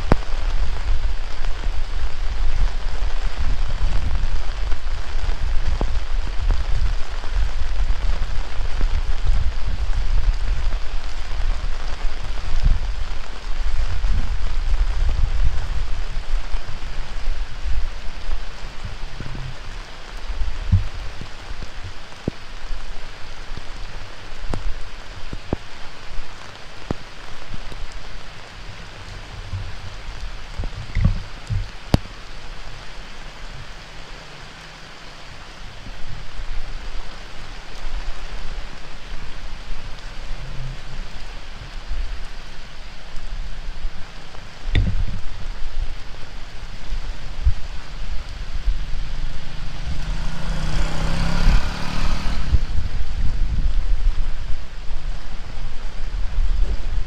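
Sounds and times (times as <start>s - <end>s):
heavy rain falling: 0.0s - 57.0s
low rumble: 26.3s - 34.1s, 35.0s - 57.0s.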